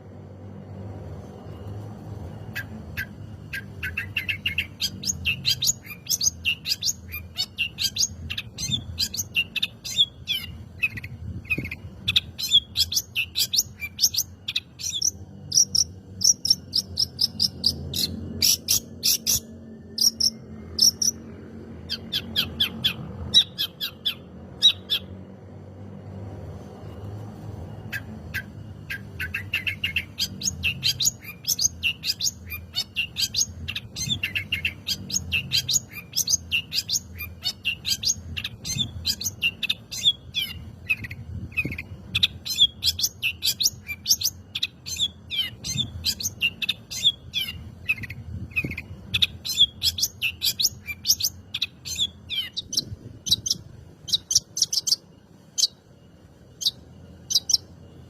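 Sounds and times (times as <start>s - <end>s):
bird singing chirps and trills: 0.0s - 58.0s.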